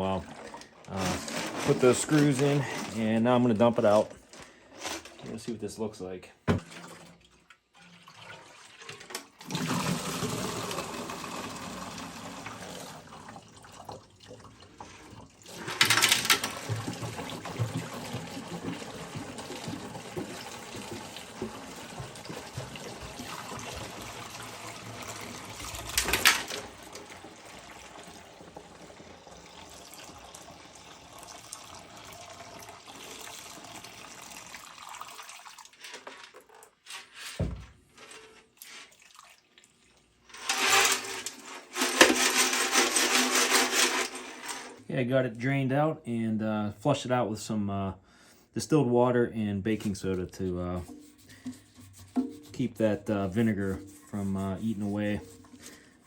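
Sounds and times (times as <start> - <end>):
liquid pouring and gurgling: 6.5 - 35.9.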